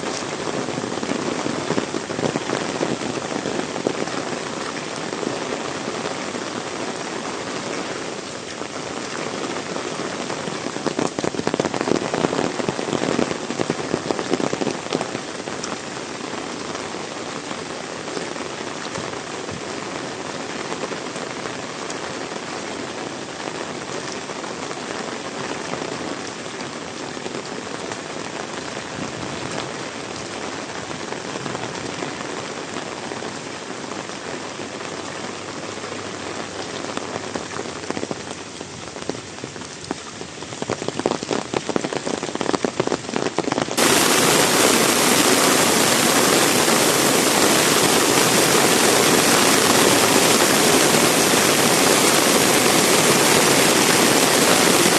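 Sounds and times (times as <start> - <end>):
heavy rain hissing: 43.8 - 54.9.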